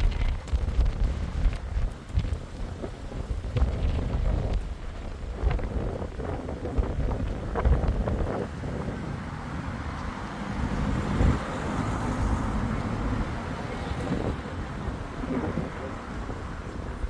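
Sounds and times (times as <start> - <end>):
thunder rumble: 0.0 - 9.0
wind buffeting microphone: 0.0 - 17.0.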